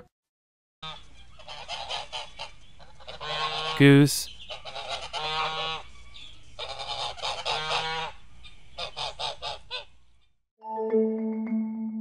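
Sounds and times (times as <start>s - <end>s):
goose honking: 0.8s - 3.8s, 4.5s - 5.9s, 6.6s - 8.2s, 8.8s - 10.0s.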